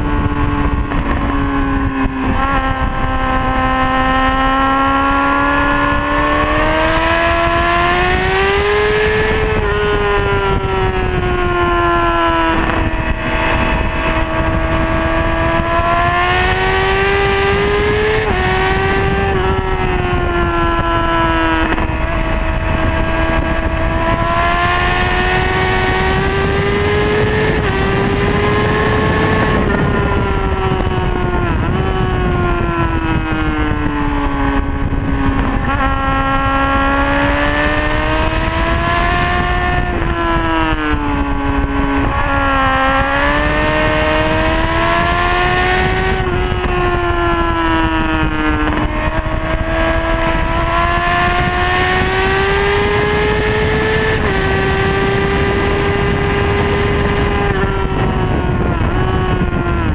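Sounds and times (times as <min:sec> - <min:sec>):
motorcycle engine revving high: 0:00.0 - 0:59.9
wind rush on microphone: 0:00.0 - 0:59.9.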